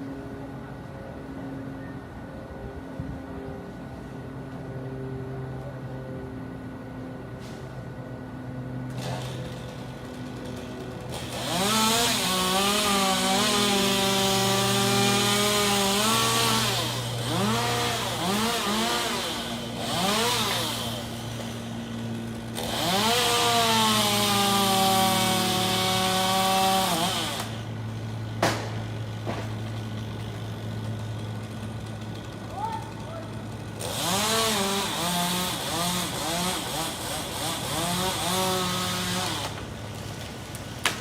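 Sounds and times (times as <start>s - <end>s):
chainsaw revving: 8.9s - 27.7s, 28.4s - 39.8s.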